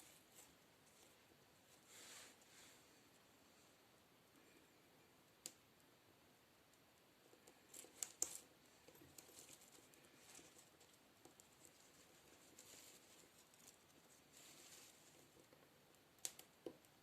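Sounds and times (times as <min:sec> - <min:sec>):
light rustling of objects: 0:00.0 - 0:03.8, 0:07.2 - 0:17.0.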